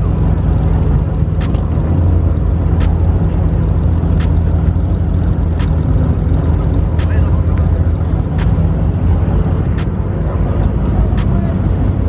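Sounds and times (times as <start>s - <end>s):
car engine running: 0.0s - 12.0s
sharp ticking: 4.0s - 8.8s.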